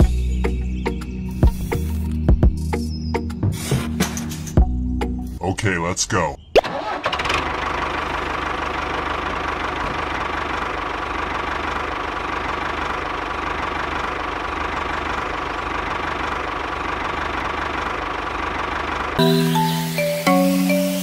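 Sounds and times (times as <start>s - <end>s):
diesel tractor engine chugging: 6.6s - 21.0s.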